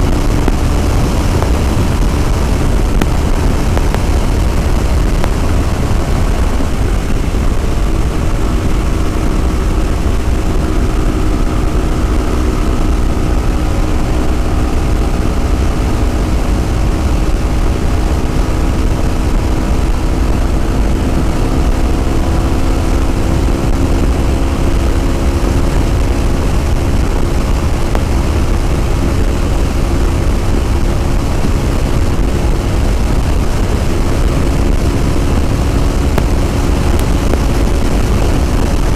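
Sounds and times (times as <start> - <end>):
motorcycle engine cruising: 0.0 - 38.9
wind rumble on microphone: 0.0 - 38.9.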